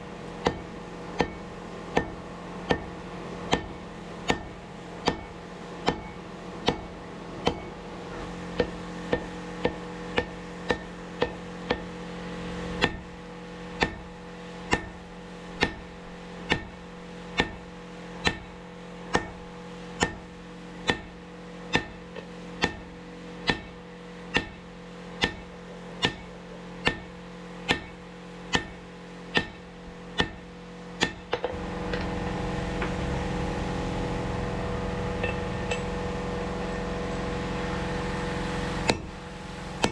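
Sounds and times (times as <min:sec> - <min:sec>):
loud steady noise: 0:00.0 - 0:39.9
steady hum: 0:00.0 - 0:39.9
hammer ringing on anvil: 0:04.3 - 0:05.3, 0:14.7 - 0:15.0, 0:22.6 - 0:22.8, 0:23.5 - 0:23.7, 0:24.3 - 0:24.6, 0:25.2 - 0:27.1, 0:28.5 - 0:28.8, 0:34.9 - 0:37.7.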